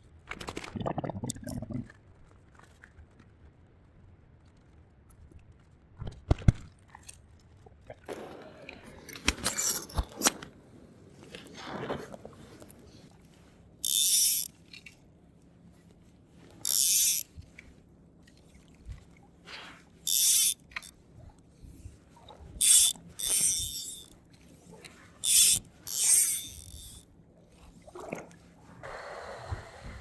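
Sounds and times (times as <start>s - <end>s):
fly reel drag buzzing: 13.8s - 14.5s, 16.6s - 17.3s, 20.1s - 20.9s, 22.6s - 24.1s, 25.2s - 27.0s.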